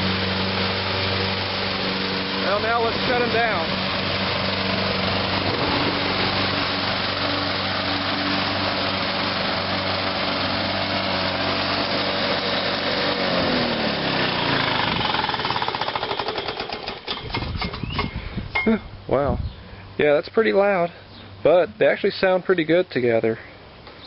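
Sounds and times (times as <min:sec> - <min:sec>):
lawnmower engine winding down: 0:00.0 - 0:18.8
lawnmower engines running: 0:00.0 - 0:24.0.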